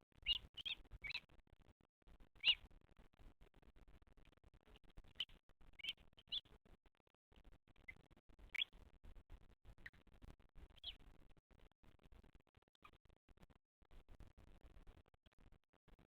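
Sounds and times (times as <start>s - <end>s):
faint rising bird chirps: 0.2s - 1.2s, 2.4s - 2.7s, 5.1s - 6.5s, 10.7s - 11.0s.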